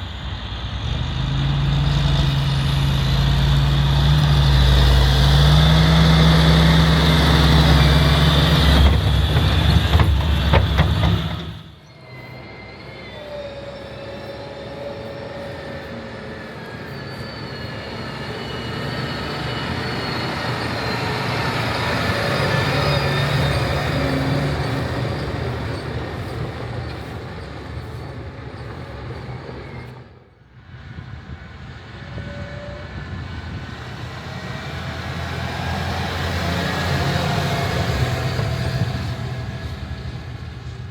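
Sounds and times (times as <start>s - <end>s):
loud tractor engine running: 0.0s - 11.8s, 33.4s - 40.9s
quieter engine: 0.0s - 40.9s.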